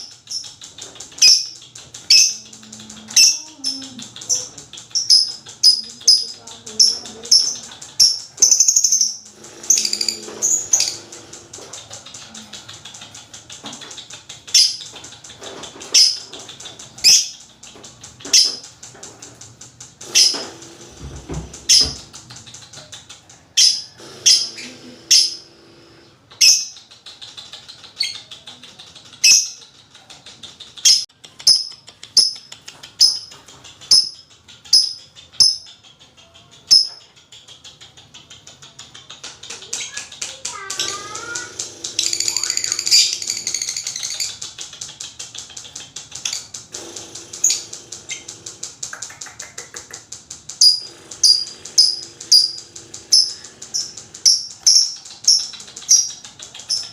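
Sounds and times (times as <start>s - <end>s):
lovebirds chattering trill: 0.0s - 18.9s, 20.0s - 56.9s
sharp high bird chirps: 7.4s - 11.1s.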